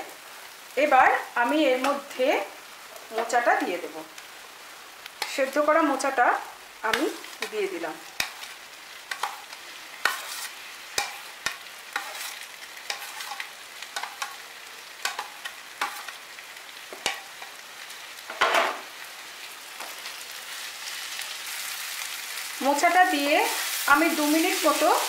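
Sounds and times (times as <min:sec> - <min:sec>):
food sizzling in wok: 0:00.0 - 0:25.0
wooden spatula stirring: 0:09.1 - 0:14.3
steel spoon scraping plastic plate: 0:10.0 - 0:10.6.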